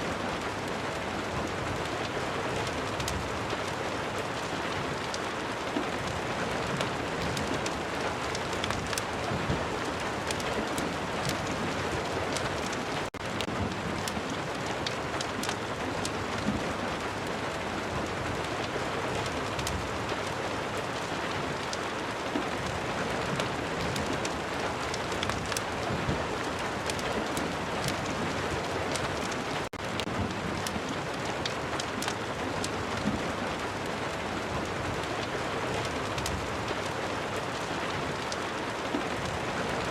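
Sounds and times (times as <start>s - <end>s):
steady rain: 0.0s - 39.9s
fireplace crackling: 6.0s - 17.1s, 22.6s - 39.9s.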